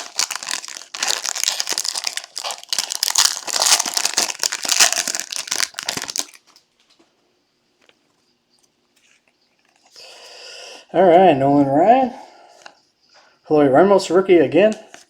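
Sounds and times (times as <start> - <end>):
plastic wrapping crinkling and tearing: 0.0 - 6.7.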